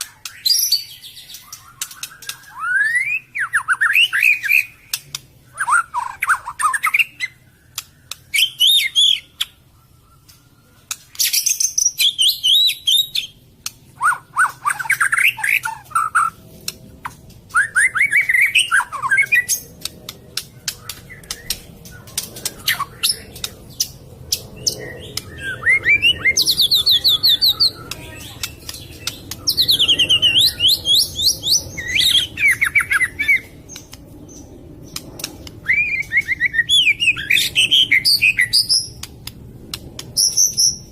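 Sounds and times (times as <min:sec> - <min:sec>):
bird whistling and trilling: 0:00.2 - 0:13.4, 0:14.0 - 0:16.4, 0:17.5 - 0:39.1
sharp clicks: 0:01.8 - 0:02.5, 0:04.9 - 0:05.4, 0:07.7 - 0:08.3, 0:16.6 - 0:17.4, 0:19.5 - 0:25.4, 0:27.8 - 0:29.7, 0:33.7 - 0:35.6, 0:39.0 - 0:40.2.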